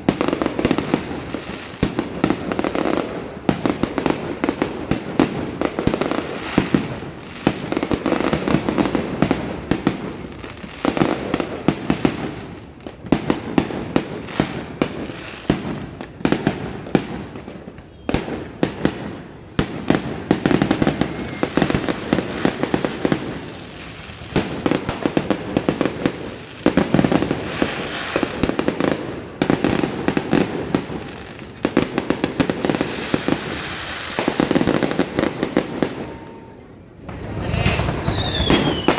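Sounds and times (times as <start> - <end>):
fireworks cracking and booming: 0.0 - 38.9
crackling rumbling echoes: 19.2 - 38.9.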